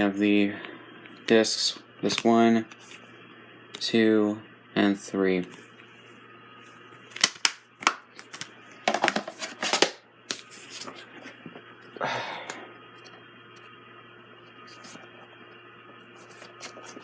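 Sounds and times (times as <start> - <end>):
plastic case rustling: 7.1 - 11.0
plastic case clicking and snapping: 7.2 - 10.0.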